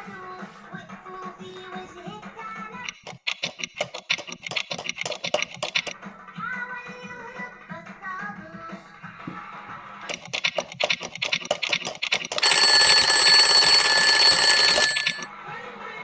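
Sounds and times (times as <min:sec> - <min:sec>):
alarm bell ringing: 0:12.4 - 0:15.3.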